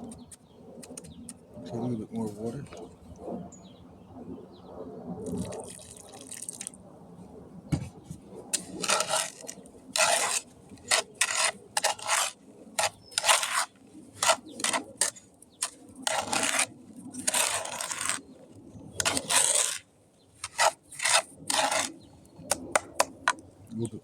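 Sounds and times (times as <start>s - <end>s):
tool scraping wet mix: 5.2s - 6.7s, 8.5s - 23.4s.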